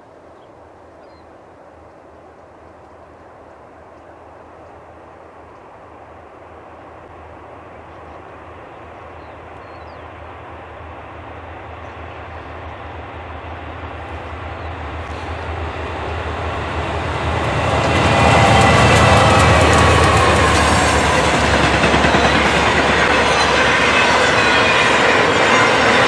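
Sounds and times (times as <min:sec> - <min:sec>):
train rail noise: 0:01.5 - 0:26.0
locomotive engine rumble: 0:07.8 - 0:26.0.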